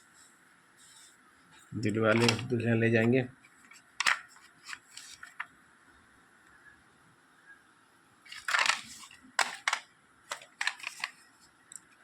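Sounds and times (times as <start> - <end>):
plastic crackle: 4.0 - 5.5, 8.3 - 11.3.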